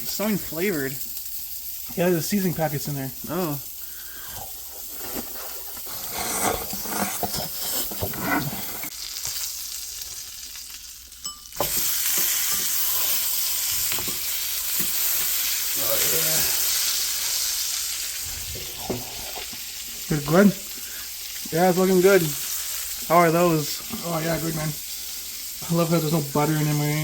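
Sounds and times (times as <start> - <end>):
burger patty sizzling in pan: 0.0 - 27.0
clinks and scrapes: 4.4 - 8.9.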